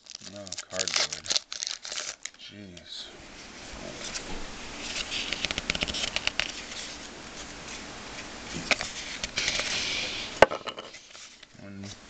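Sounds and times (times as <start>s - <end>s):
cards rustling: 0.0s - 2.4s, 4.0s - 7.8s
cards clicking: 4.9s - 6.6s.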